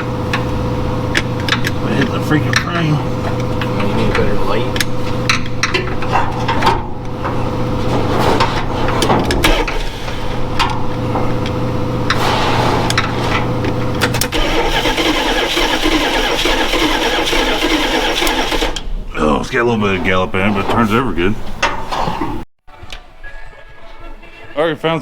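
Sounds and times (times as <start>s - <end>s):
starter motor whine: 0.0s - 19.0s
truck engine cranking on starter: 0.0s - 19.1s.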